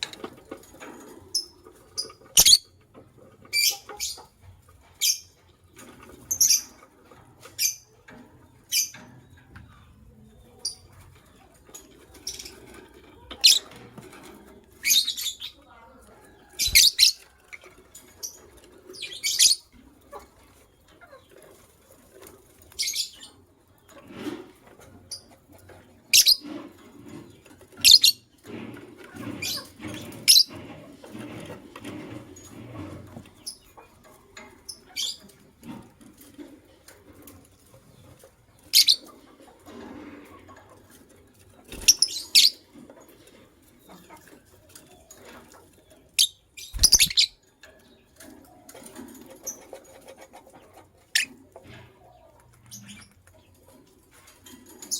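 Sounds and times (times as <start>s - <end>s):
lovebirds chirping: 1.4s - 2.7s, 16.5s - 17.2s, 38.7s - 39.1s, 45.9s - 48.1s, 52.2s - 53.2s
rustling and wing fluttering: 16.1s - 25.4s, 26.1s - 54.9s.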